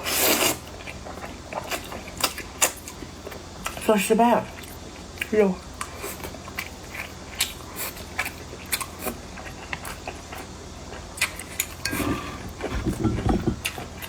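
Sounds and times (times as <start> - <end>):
person chewing: 4.6 - 10.4.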